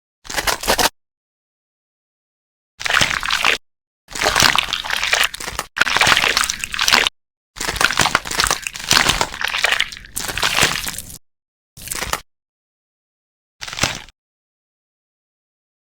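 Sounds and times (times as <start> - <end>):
slime squelching: 2.8 - 11.2, 11.8 - 12.2, 13.6 - 14.1.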